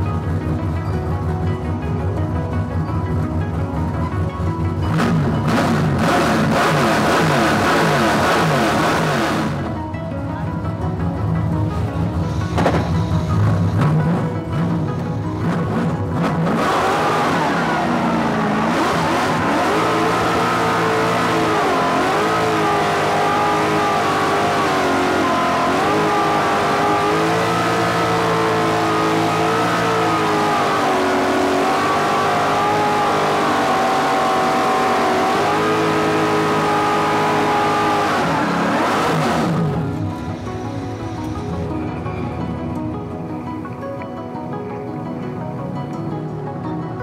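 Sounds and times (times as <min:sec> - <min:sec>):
car engine revving: 0:04.2 - 0:09.8, 0:11.8 - 0:42.8.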